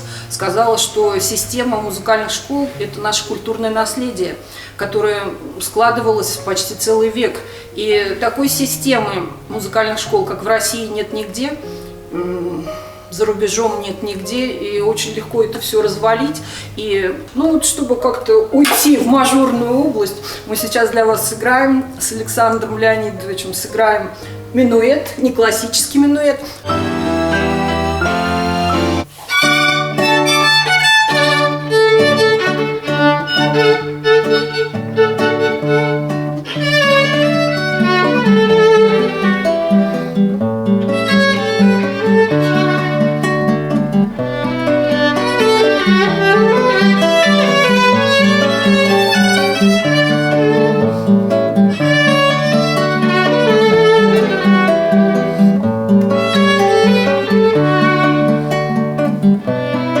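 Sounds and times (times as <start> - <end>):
chordal accompaniment: 26.6 - 38.5
violin playing a minuet: 26.6 - 55.5, 56.1 - 58.8, 59.4 - 60.0.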